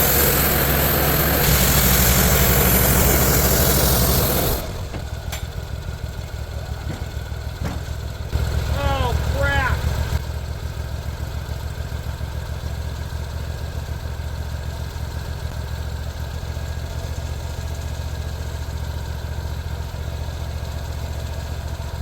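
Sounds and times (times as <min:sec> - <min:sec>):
sawmill engine idling: 0:00.0 - 0:22.0.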